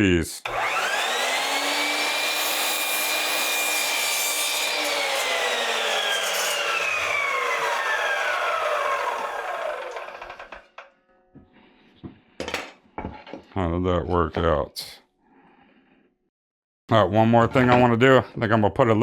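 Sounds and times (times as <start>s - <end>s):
miter saw cutting wood: 0.4s - 10.8s.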